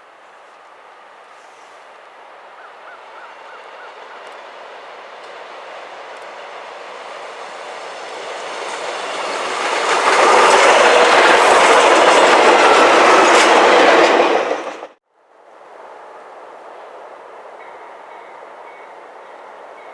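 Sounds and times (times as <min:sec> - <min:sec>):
train wheels clattering: 0:07.0 - 0:15.0.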